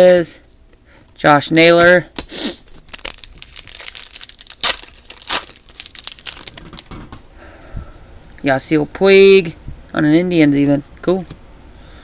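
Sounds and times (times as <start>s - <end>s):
card pack wrapper crinkling: 2.6s - 6.9s.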